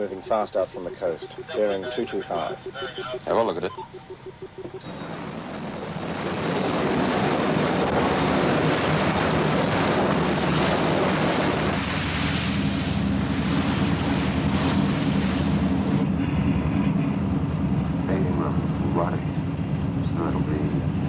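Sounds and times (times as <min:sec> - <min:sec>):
low engine drone: 0:00.0 - 0:21.0
wind buffeting microphone: 0:04.0 - 0:21.0
water rushing past hull: 0:04.8 - 0:16.2.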